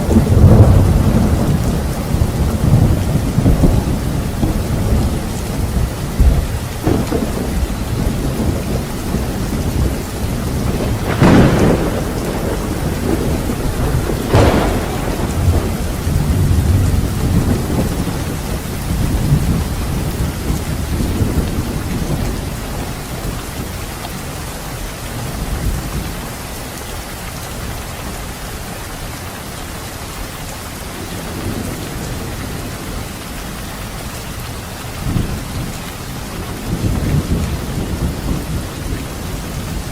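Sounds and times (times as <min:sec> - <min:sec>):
sharp thunder cracks: 0:00.0 - 0:05.2, 0:06.2 - 0:22.8
rolling thunder: 0:00.0 - 0:23.9, 0:31.0 - 0:39.9
steady rain: 0:00.0 - 0:39.9.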